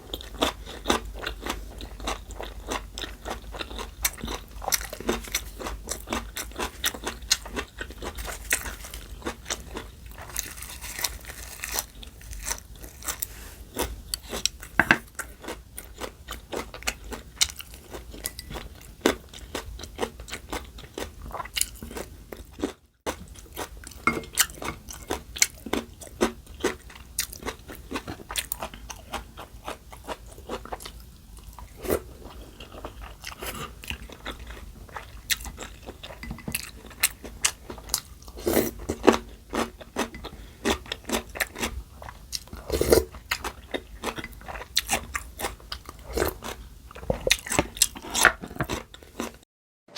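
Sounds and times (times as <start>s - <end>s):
person chewing and crunching food: 0.0s - 49.4s.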